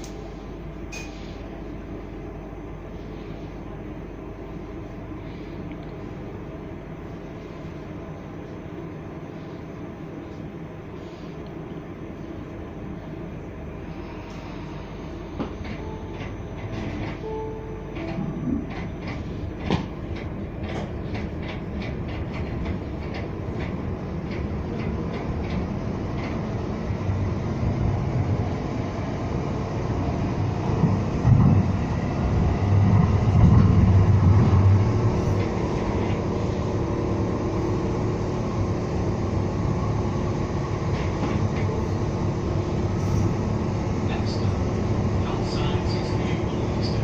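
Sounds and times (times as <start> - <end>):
train running rumble: 0.0 - 47.0
train wheels clicking over rail joints: 18.0 - 27.0.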